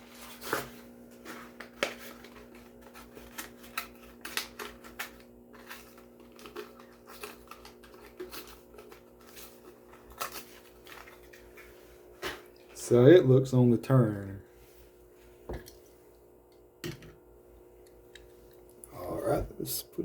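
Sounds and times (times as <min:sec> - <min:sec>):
steady low hum: 0:00.0 - 0:20.0
plastic packaging snapping and crackling: 0:00.3 - 0:12.6.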